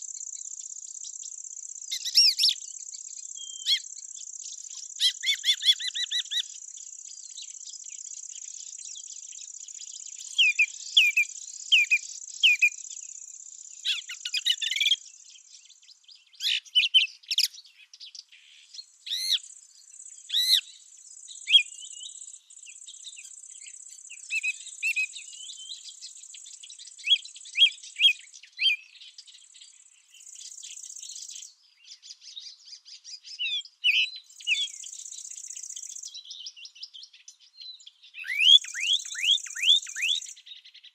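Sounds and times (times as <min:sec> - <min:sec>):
high-pitched insect trill: 0:00.0 - 0:15.4, 0:34.3 - 0:36.2, 0:38.5 - 0:40.4
songbirds chirping and singing: 0:00.0 - 0:40.9.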